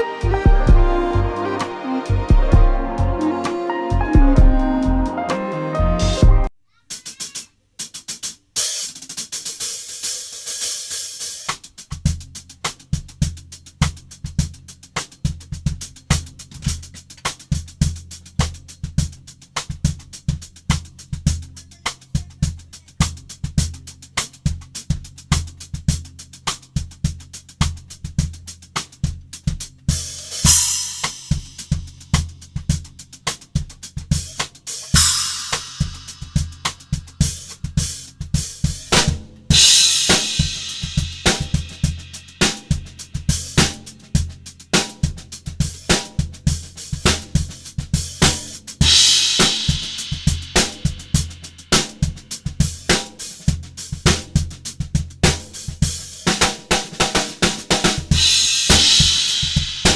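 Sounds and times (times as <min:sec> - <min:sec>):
drum kit groove: 0:00.0 - 0:59.9
crash cymbal hits: 0:30.4 - 0:31.5, 0:34.9 - 0:36.8, 0:39.0 - 0:42.6, 0:48.8 - 0:51.1, 0:58.2 - 0:59.9.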